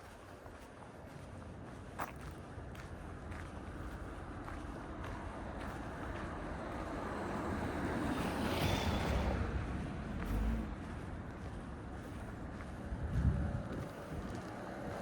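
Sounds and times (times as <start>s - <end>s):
vehicle passing on street: 2.4s - 15.0s
wind on microphone: 12.7s - 14.4s.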